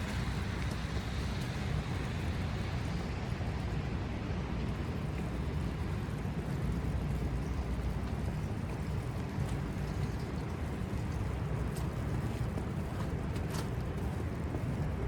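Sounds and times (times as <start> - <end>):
city traffic hum: 0.0 - 15.0.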